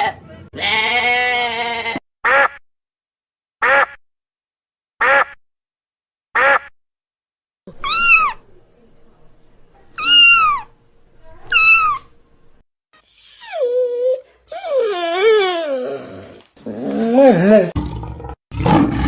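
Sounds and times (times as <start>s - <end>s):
duck quack: 2.2s - 2.6s, 3.6s - 4.0s, 5.0s - 5.4s, 6.4s - 6.7s
cat meowing: 7.7s - 8.4s, 10.0s - 10.7s, 11.5s - 12.1s.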